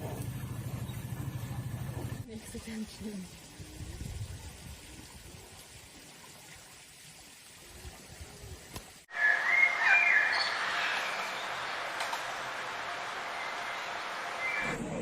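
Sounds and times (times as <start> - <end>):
steady hiss: 8.7 - 14.8
high whistling animal calls: 9.1 - 12.0.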